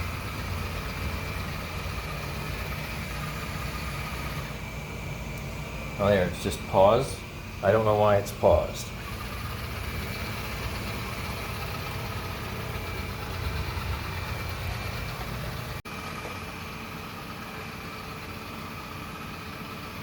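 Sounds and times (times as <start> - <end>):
robot vacuum humming: 0.0 - 15.8.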